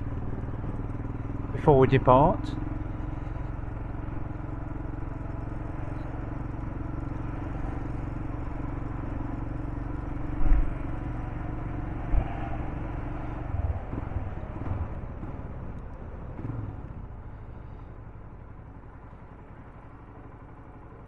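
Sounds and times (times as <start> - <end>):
motorcycle engine running: 0.0 - 21.0
wind and road rumble: 0.0 - 21.0
low thumps: 12.1 - 17.2.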